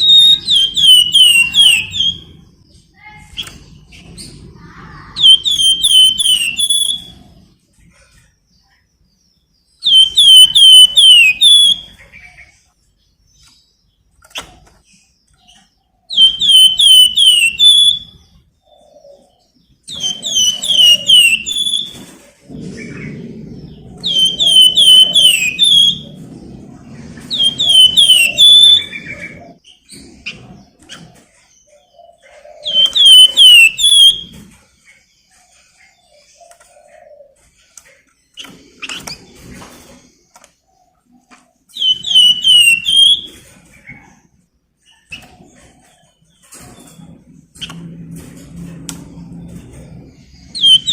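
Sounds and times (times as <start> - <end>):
songbird chirping phrases: 0.0 - 34.4
low rumble: 25.9 - 27.7.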